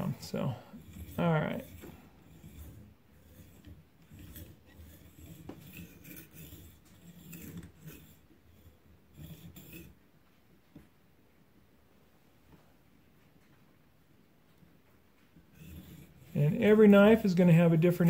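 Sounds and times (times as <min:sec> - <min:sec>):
sharpening stone scraping knife edge: 0:00.8 - 0:09.9.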